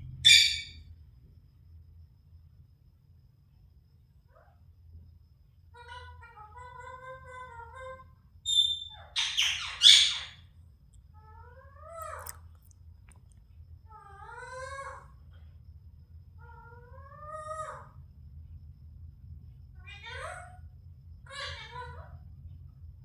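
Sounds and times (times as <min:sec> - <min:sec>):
parrot squawking: 0:00.2 - 0:00.8, 0:05.8 - 0:10.4, 0:21.3 - 0:22.0
parrot meow-like calls: 0:05.7 - 0:10.4, 0:11.2 - 0:12.4, 0:13.9 - 0:15.2, 0:16.4 - 0:18.0, 0:19.8 - 0:22.2.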